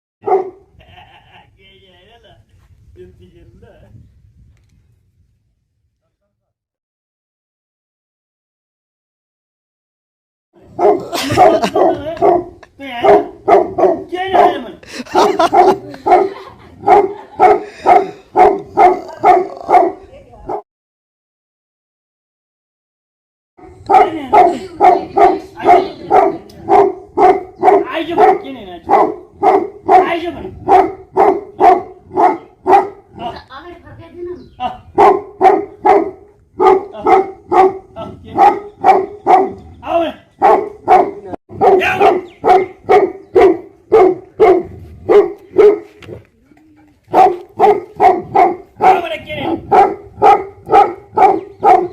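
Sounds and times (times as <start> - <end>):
large dog barking: 0.2 - 0.7, 10.6 - 20.6, 23.6 - 33.2, 34.9 - 46.3, 47.1 - 51.9.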